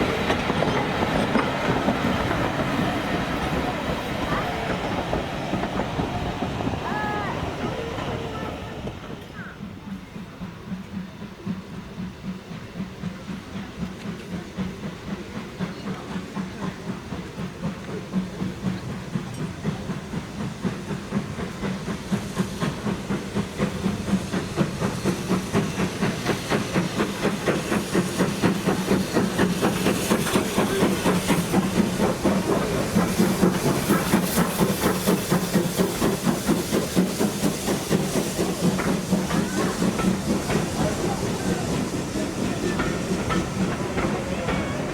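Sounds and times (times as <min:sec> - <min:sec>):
steam hiss: 0:00.0 - 0:44.9
steam locomotive exhaust beats: 0:00.0 - 0:44.9.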